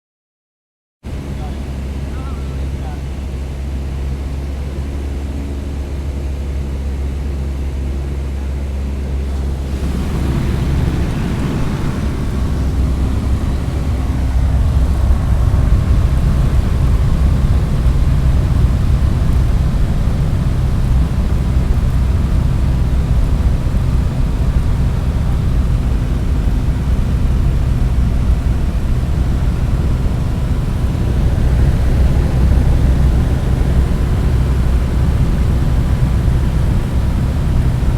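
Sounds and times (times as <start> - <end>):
airplane engine drone: 1.1 - 37.9
rush of wind: 8.8 - 37.9.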